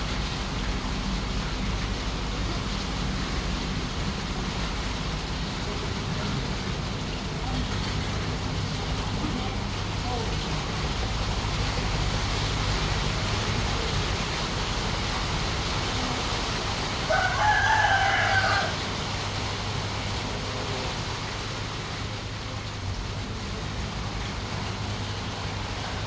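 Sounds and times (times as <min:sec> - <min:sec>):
rooster crowing: 0:17.0 - 0:19.0.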